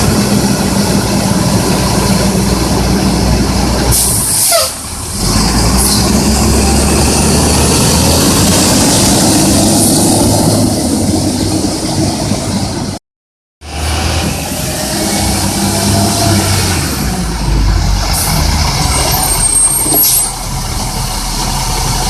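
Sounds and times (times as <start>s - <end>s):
diesel engine running: 13.7s - 22.0s.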